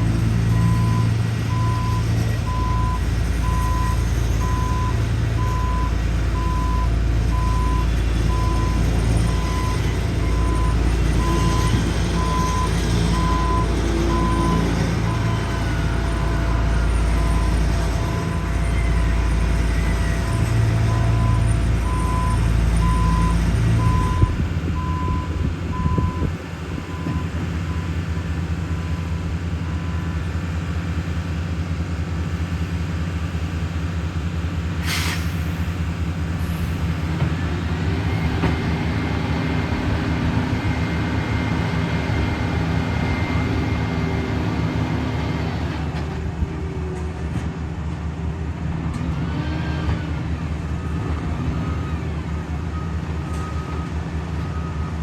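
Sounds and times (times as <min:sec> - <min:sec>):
diesel machinery rumbling: 0:00.0 - 0:55.0
reversing alarm beeping: 0:00.5 - 0:30.3, 0:50.6 - 0:55.0
air brake hiss: 0:34.8 - 0:35.8, 0:36.4 - 0:37.0.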